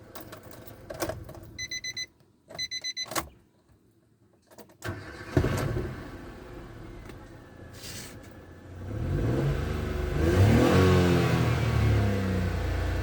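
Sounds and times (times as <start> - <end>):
car engine cranking and running: 4.7 - 13.0
car engine stopping: 4.8 - 13.0.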